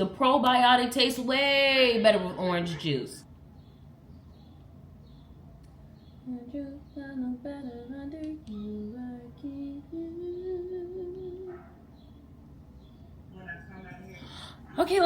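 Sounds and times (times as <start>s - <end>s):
woman humming a tune: 6.3s - 11.5s.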